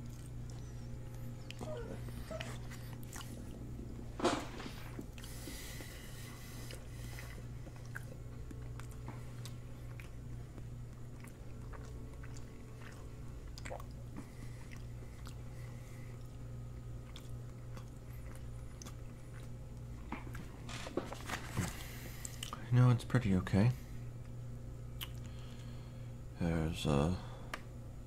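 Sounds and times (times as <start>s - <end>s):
chewing mouth clicks: 0.0s - 3.6s, 6.6s - 16.4s, 17.0s - 20.4s, 25.0s - 25.4s
steady low hum: 0.0s - 28.0s.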